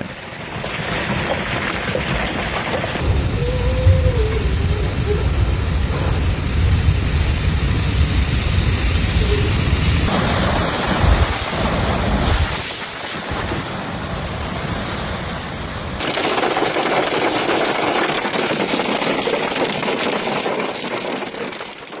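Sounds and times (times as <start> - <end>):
pelting precipitation hiss: 0.1 - 22.0
wind rumbling on microphone: 0.8 - 16.0
wind roaring: 1.1 - 22.0.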